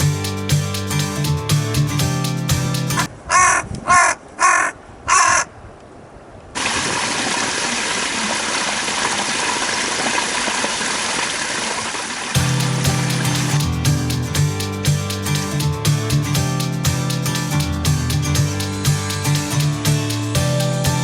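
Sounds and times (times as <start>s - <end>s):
crow cawing: 3.3s - 5.5s.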